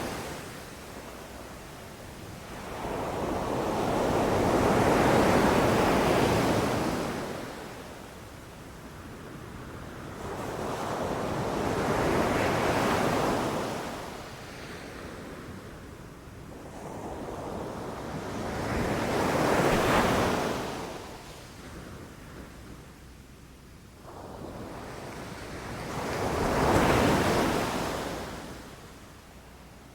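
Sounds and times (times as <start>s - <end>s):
waves breaking on a beach: 0.0s - 22.9s.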